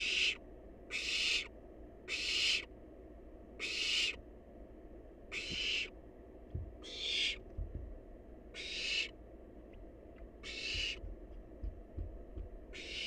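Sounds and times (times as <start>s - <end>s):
owl chick hissing: 0.0s - 2.7s, 3.6s - 4.2s, 5.3s - 6.0s, 6.8s - 7.4s, 8.5s - 9.2s, 10.4s - 11.0s, 12.8s - 13.0s
soft low bumps: 6.4s - 6.8s, 7.4s - 8.2s, 9.7s - 12.8s.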